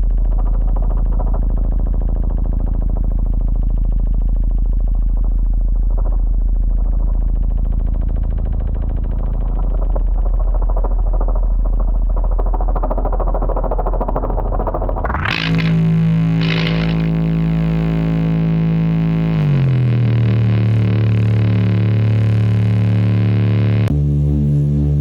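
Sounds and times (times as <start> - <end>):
low tone through loudspeaker: 15.1 - 23.9.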